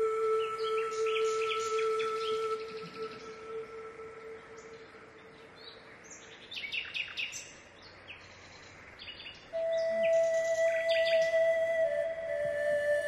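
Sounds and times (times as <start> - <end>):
soft instrumental music: 0.0 - 5.5, 9.6 - 13.0
small birds chirping: 4.2 - 11.6.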